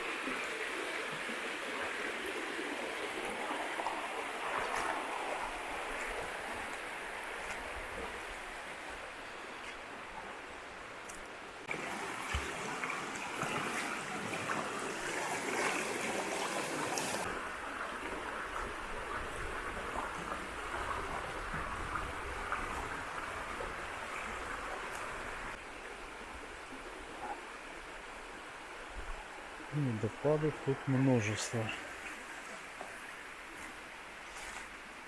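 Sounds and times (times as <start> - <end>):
river water rushing: 0.0 - 35.0.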